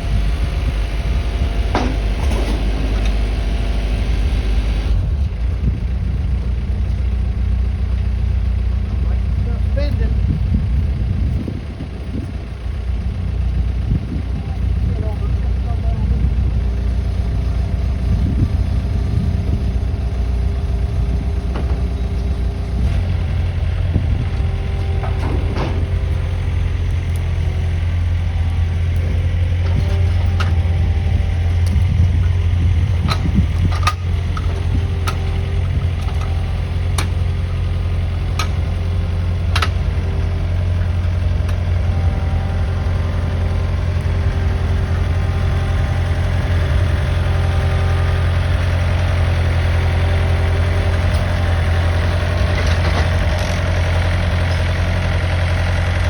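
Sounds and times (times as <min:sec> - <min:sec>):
pickup engine running: 0:00.0 - 0:56.0
sharp clicks and knocks: 0:33.0 - 0:37.3, 0:38.3 - 0:38.8, 0:39.4 - 0:39.9.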